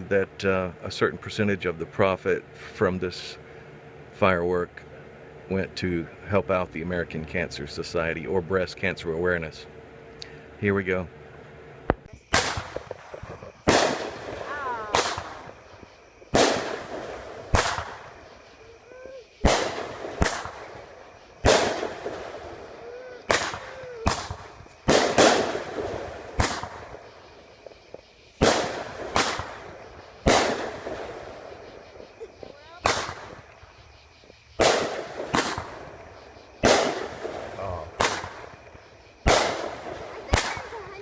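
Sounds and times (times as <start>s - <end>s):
firework bangs echoing: 11.9s - 41.0s.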